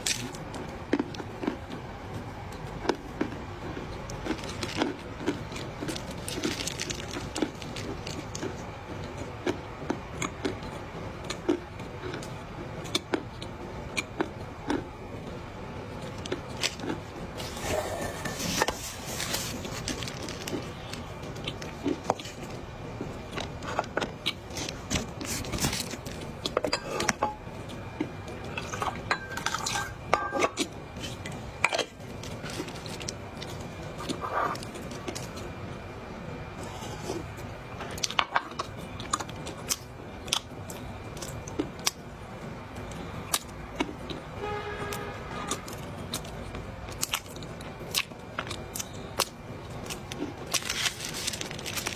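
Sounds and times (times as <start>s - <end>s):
chewing crunchy clay: 0.0s - 15.2s, 45.4s - 51.9s.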